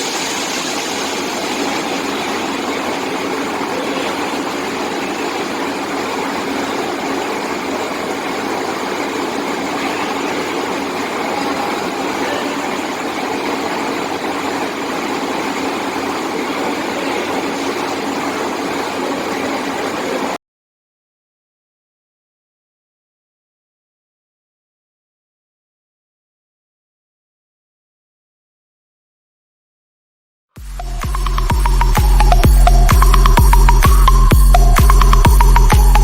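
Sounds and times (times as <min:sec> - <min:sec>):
drilling rig engine drone: 0:00.0 - 0:20.4, 0:30.6 - 0:36.0.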